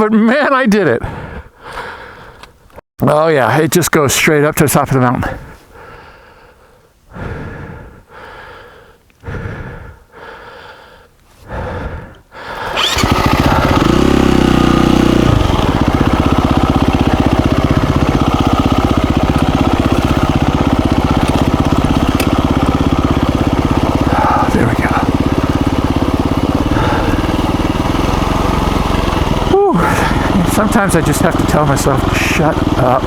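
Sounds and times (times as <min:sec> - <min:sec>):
heavy breathing: 0:01.0 - 0:02.6, 0:05.3 - 0:12.8, 0:24.0 - 0:25.1, 0:26.6 - 0:27.5, 0:29.7 - 0:30.4
motorcycle engine starting and idling: 0:12.4 - 0:33.0.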